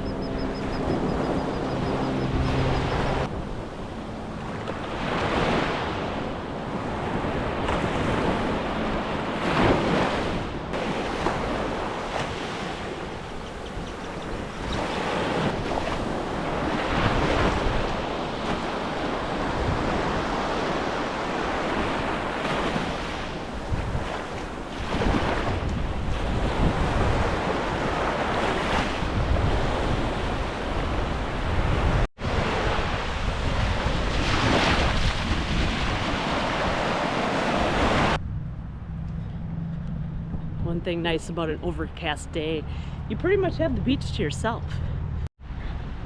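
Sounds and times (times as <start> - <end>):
wind buffeting microphone: 0.0 - 46.0
surf breaking on a beach: 3.0 - 13.5, 14.6 - 38.2
steady low hum: 38.2 - 41.0.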